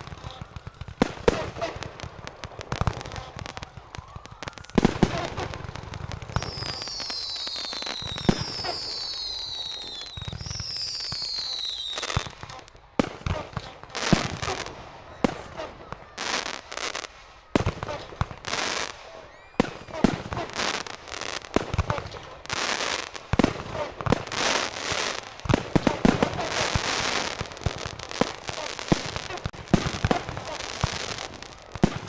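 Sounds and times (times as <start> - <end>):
fireworks bangs and crackling: 0.0 - 32.0
firework whistles falling in pitch: 6.3 - 12.3, 18.4 - 21.4.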